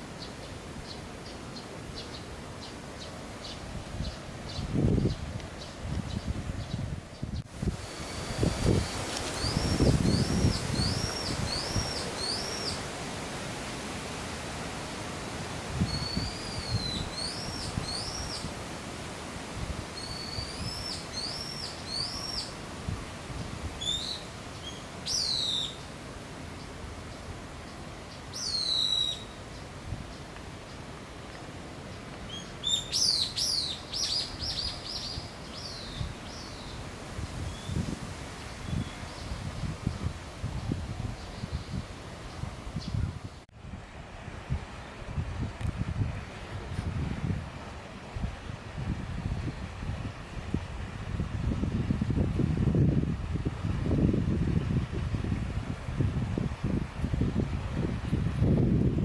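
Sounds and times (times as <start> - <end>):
songbird whistling: 23.8 - 25.8, 28.3 - 29.4, 32.3 - 36.0.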